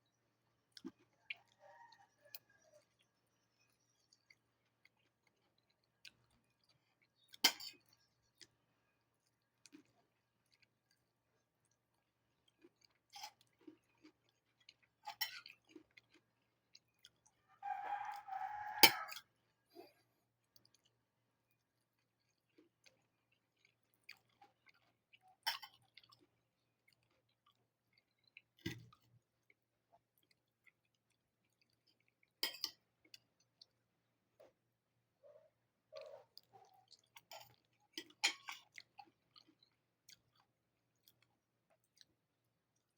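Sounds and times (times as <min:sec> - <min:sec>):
rooster call: 0:17.6 - 0:19.2.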